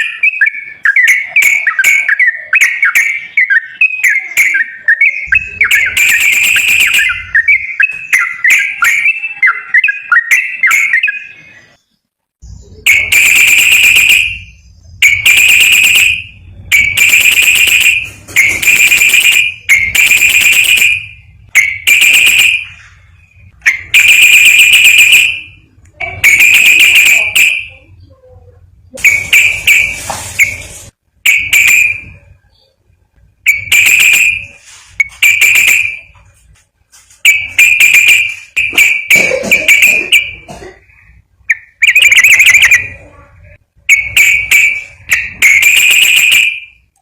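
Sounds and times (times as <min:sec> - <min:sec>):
bird chirping: 0:00.0 - 0:28.2.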